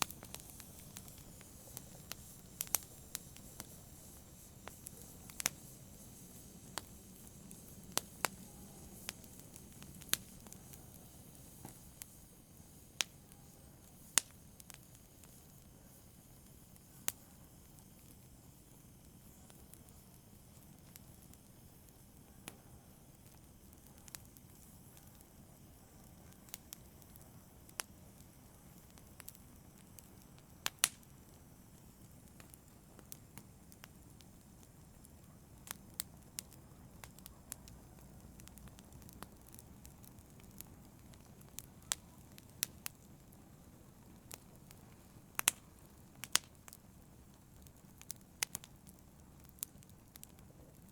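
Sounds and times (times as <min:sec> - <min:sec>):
flames rushing: 0:00.0 - 0:21.8
wood fire crackling and popping: 0:00.0 - 0:50.9.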